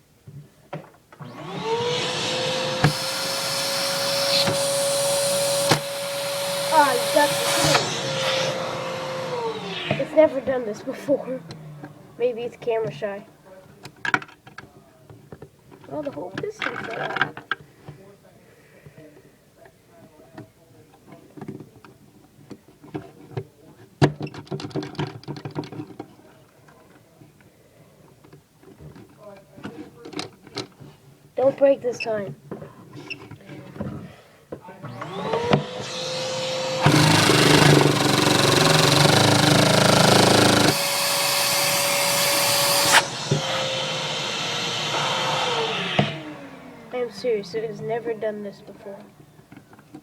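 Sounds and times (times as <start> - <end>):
vacuum cleaner motor whining: 1.1 - 14.2, 34.6 - 50.0.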